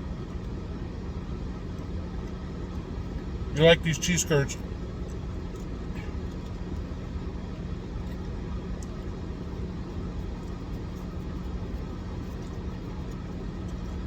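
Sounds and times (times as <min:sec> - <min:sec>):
car engine idling: 0:02.7 - 0:07.8.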